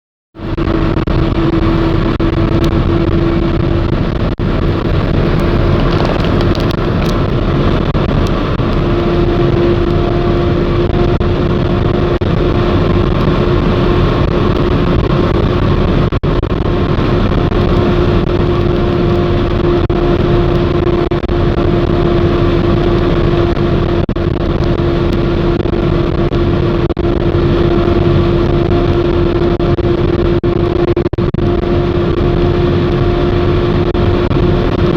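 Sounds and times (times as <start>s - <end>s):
car engine cruising: 0.4s - 34.9s
tyre road noise: 0.4s - 34.9s.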